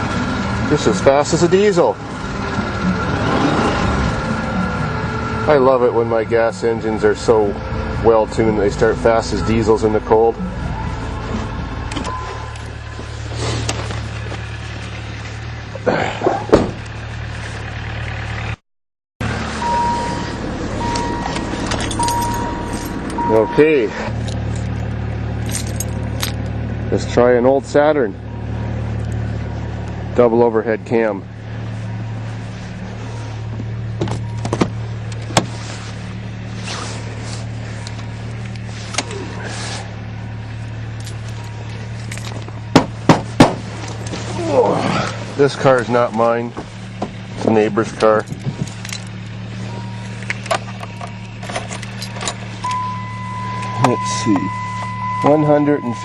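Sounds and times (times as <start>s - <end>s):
car engine idling: 0.0s - 18.6s, 19.2s - 56.0s
steady high beep: 8.9s - 13.2s, 19.6s - 24.0s, 52.6s - 56.0s
engine knocks: 11.9s - 18.5s, 40.7s - 44.2s, 44.9s - 56.0s.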